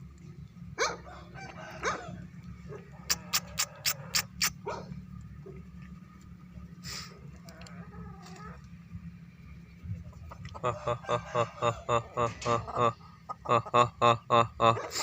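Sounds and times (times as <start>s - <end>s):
low steady hum: 0.0s - 15.0s
rooster giving short rising calls: 2.9s - 4.6s.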